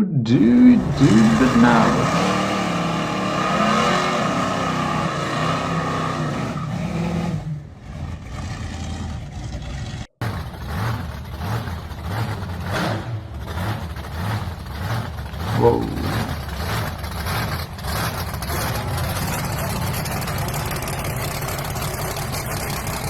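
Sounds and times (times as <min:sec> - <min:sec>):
steady car engine note: 0:00.0 - 0:05.0, 0:15.4 - 0:17.3
engine running unevenly: 0:00.4 - 0:03.6, 0:13.2 - 0:23.0.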